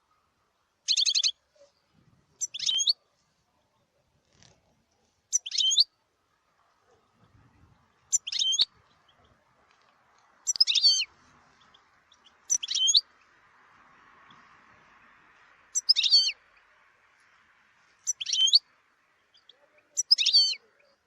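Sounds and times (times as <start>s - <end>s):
goldfinch twittering: 0.9s - 1.4s, 2.4s - 3.0s, 5.3s - 5.9s, 7.9s - 9.4s, 10.4s - 13.4s, 15.7s - 16.7s, 18.0s - 21.0s.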